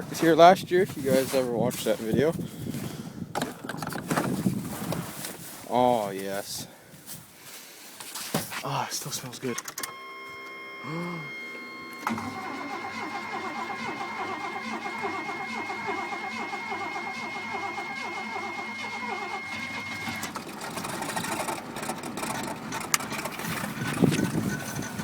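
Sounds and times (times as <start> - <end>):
truck engine cranking on starter: 9.4 - 25.0
engine running roughly: 12.1 - 25.0.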